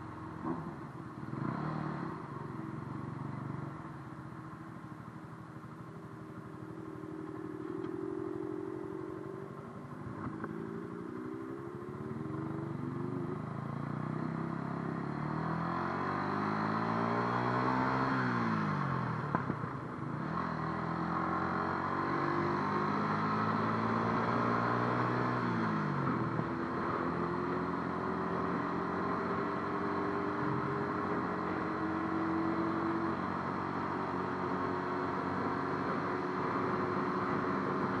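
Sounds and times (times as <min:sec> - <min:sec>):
motorcycle engine accelerating: 0:00.0 - 0:38.0.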